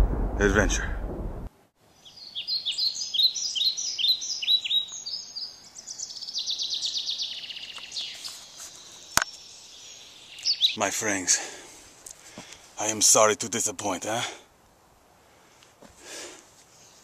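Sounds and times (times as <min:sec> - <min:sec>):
songbirds singing: 0:01.8 - 0:11.4.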